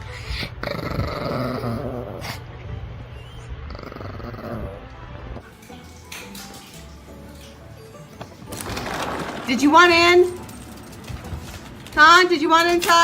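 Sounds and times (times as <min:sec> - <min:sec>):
dog growling: 0:00.3 - 0:02.5, 0:03.6 - 0:05.0.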